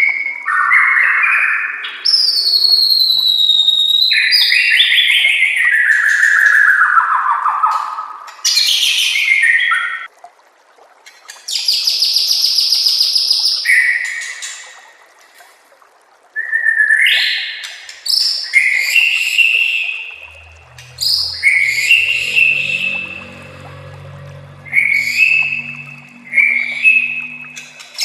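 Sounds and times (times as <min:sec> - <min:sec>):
bird singing whistles and trills: 0:02.1 - 0:04.9.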